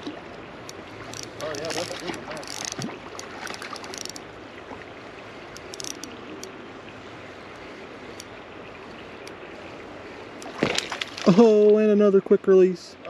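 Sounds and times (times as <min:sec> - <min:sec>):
creek water running: 0:00.0 - 0:13.0
light clicks: 0:05.5 - 0:06.6.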